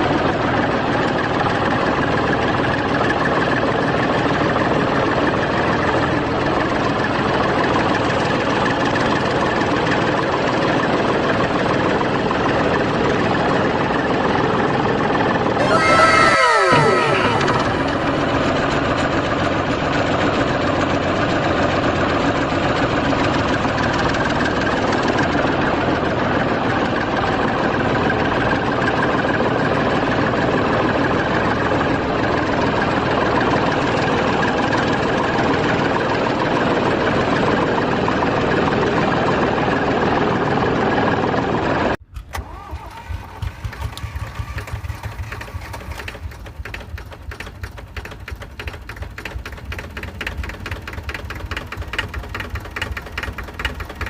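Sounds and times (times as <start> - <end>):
tractor engine under load: 41.6 - 54.0
low engine idle: 42.0 - 54.0
rapid clicking: 42.4 - 54.0.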